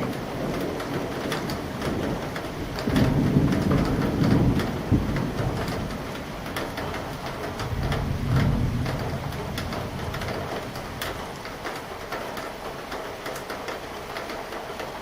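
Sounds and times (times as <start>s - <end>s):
thunder rumbling: 0.0s - 11.9s
raindrops hitting close by: 0.0s - 15.0s
steady rain: 0.0s - 15.0s.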